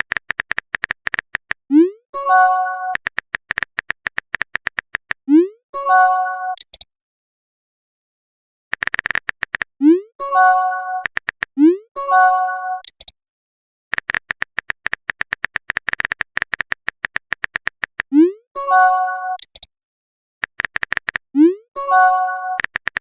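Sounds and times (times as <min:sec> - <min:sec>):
phone keyboard typing clicks: 0:00.0 - 0:01.7, 0:03.0 - 0:05.2, 0:06.6 - 0:06.9, 0:08.7 - 0:09.8, 0:11.0 - 0:11.5, 0:12.8 - 0:13.1, 0:13.9 - 0:18.2, 0:19.4 - 0:19.7, 0:20.4 - 0:21.3, 0:22.5 - 0:23.0.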